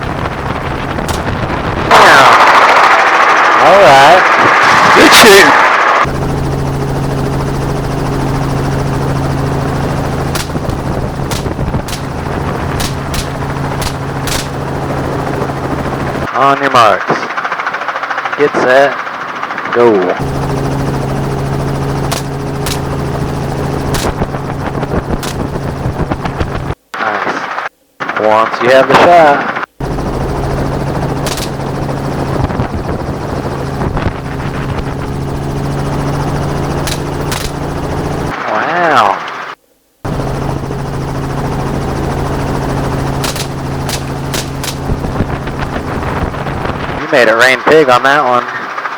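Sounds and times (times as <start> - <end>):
helicopter flying: 0.0 - 27.2, 28.0 - 48.9
gunshots: 1.1 - 2.5, 10.2 - 15.4, 22.0 - 23.2, 23.9 - 24.4, 25.2 - 25.6, 31.2 - 31.9, 36.8 - 37.8, 43.2 - 45.1.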